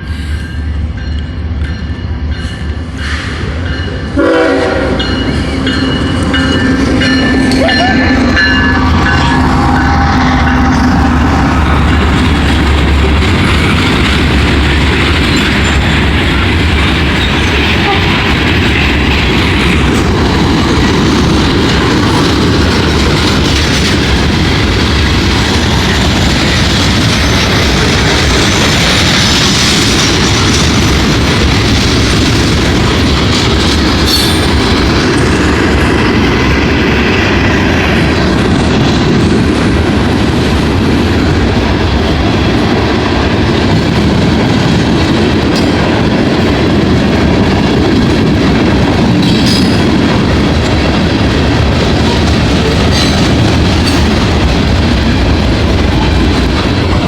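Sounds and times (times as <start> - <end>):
freight train rolling past: 0.0 - 57.0
high metallic wheel noise: 0.4 - 32.5
wheels clacking over rail joints: 1.0 - 57.0.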